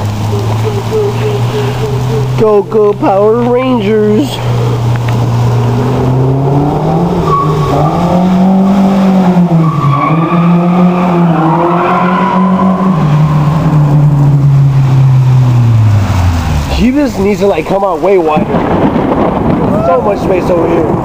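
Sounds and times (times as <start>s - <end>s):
car engine at high revs: 0.0s - 19.6s.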